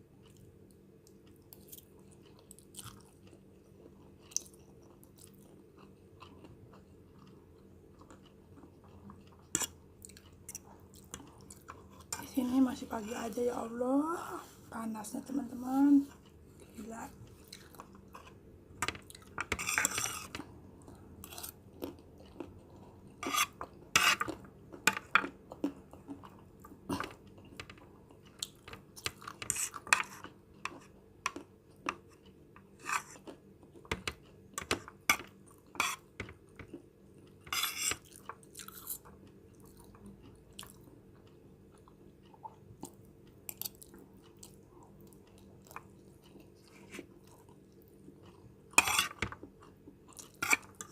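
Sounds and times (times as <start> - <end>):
person chewing: 0.2 - 12.3, 16.1 - 50.9.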